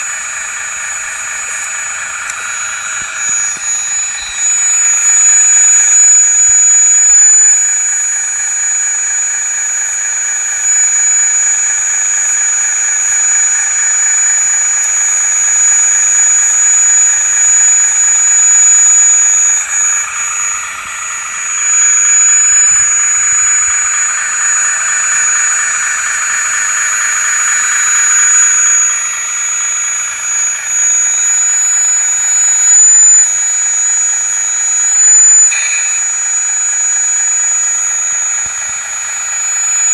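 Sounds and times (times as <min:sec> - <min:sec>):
low hum: 0:00.0 - 0:08.4
hydraulic pump whining: 0:00.0 - 0:39.9.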